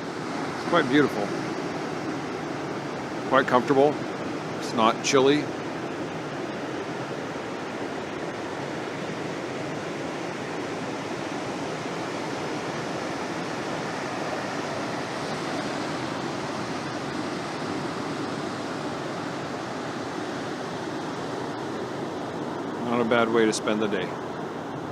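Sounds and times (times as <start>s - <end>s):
waves breaking on beach: 0.0s - 24.9s.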